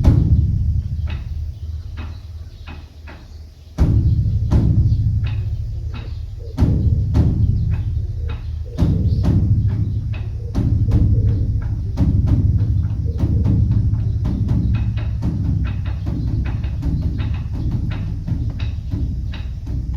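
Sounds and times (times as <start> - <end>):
large drum booming: 0.0 - 19.9.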